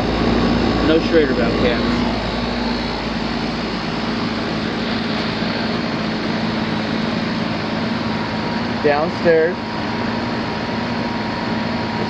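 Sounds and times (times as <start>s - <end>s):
air conditioner fan rush: 0.0s - 12.0s
compressor hum: 0.0s - 12.0s.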